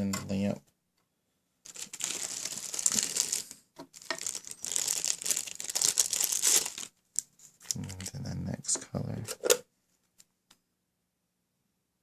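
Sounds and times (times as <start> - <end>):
crinkling rustle with clicks: 1.7 - 8.2.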